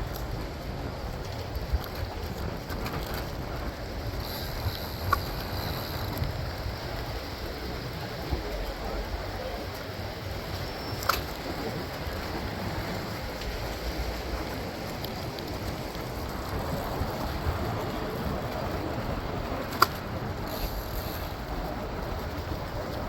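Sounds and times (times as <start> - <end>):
road noise: 0.0 - 23.0
rushing wind: 0.0 - 23.0.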